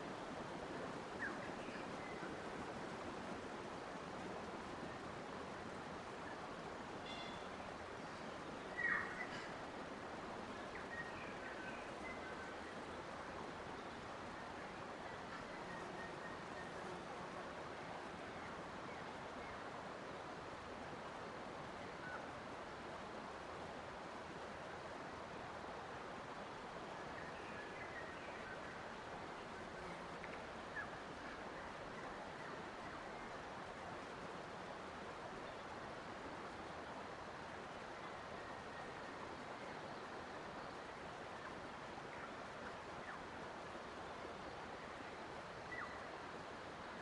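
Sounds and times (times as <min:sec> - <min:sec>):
faint bird chirps: 0:07.0 - 0:09.6, 0:10.5 - 0:13.1, 0:13.7 - 0:17.0, 0:21.8 - 0:22.3, 0:45.6 - 0:46.2.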